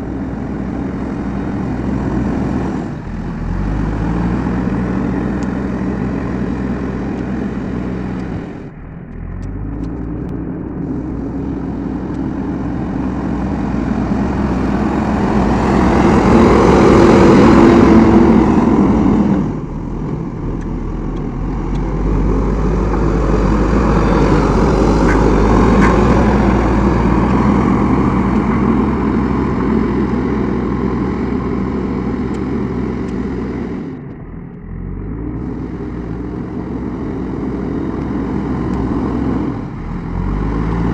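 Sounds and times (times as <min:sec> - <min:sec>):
backhoe diesel engine working: 0:00.0 - 0:40.9.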